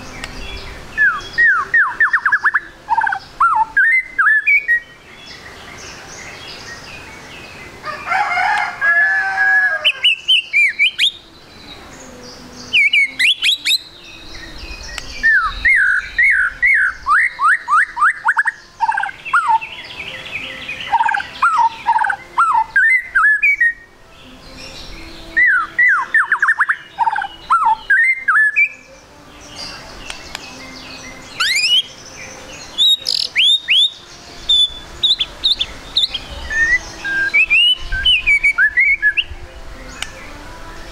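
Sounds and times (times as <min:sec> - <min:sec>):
bird singing whistled phrases: 0:00.2 - 0:05.4, 0:09.9 - 0:11.3, 0:12.6 - 0:23.9, 0:24.9 - 0:29.0, 0:29.6 - 0:32.0, 0:32.6 - 0:39.4.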